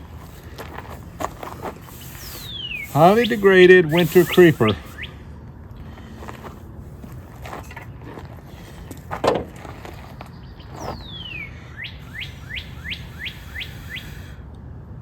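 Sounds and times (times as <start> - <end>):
songbird singing: 1.8 - 6.2, 9.7 - 14.3.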